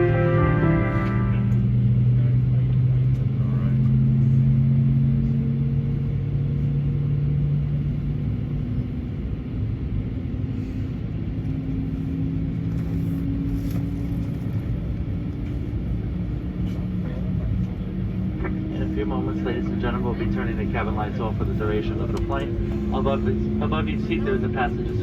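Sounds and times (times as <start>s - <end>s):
jet engines droning in cabin: 0.0s - 25.0s.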